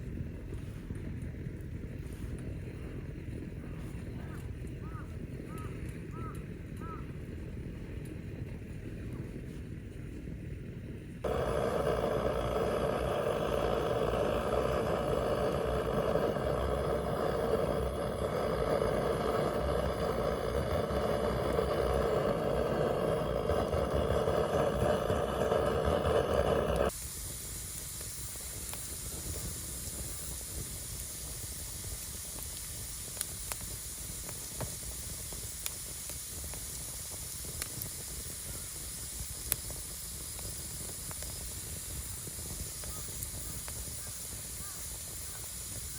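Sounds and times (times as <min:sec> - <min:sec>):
fire crackling pops: 0:00.0 - 0:45.9
wood fire hissing: 0:00.0 - 0:45.9
loud steady rushing noise: 0:11.2 - 0:27.0.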